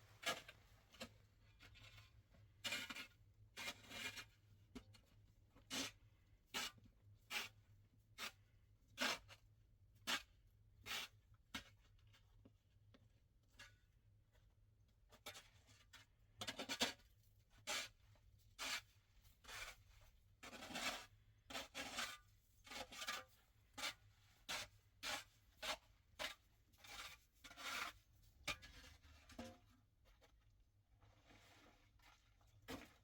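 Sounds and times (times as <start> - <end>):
faint scraping strokes: 31.0 - 32.9.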